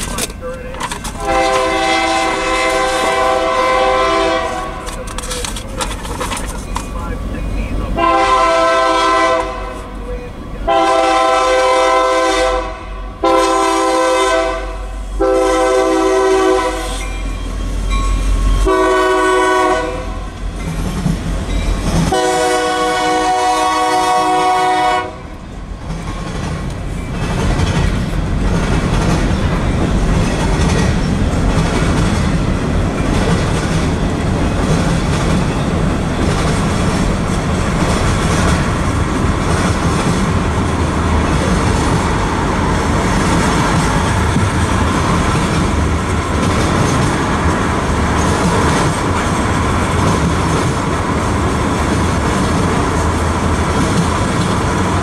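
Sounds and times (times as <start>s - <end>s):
wheels clacking on rails: 0.0s - 12.5s, 16.8s - 55.0s
locomotive engine rumble: 0.0s - 14.0s, 14.8s - 55.0s
locomotive air horn blasts: 1.2s - 5.0s, 8.0s - 10.0s, 10.6s - 17.1s, 18.6s - 20.3s, 22.1s - 25.3s
freight cars rolling past: 25.4s - 55.0s.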